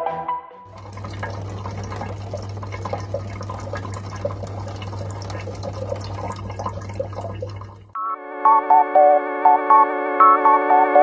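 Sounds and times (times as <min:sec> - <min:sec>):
tap water splattering into sink: 0:00.7 - 0:07.9.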